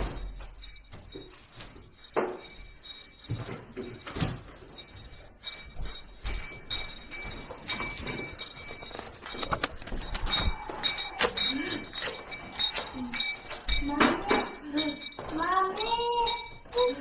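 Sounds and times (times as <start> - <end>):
faint high ringing tone: 0.0 - 9.4.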